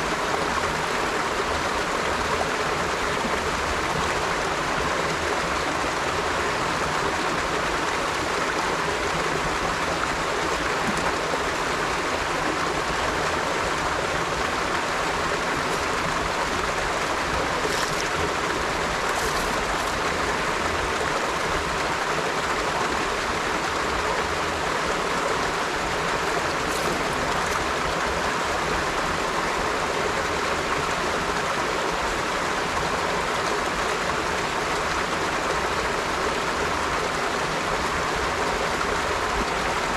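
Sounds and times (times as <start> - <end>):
river water flowing over rocks: 0.0 - 39.9
faint water splashes: 13.9 - 21.8, 25.4 - 29.2.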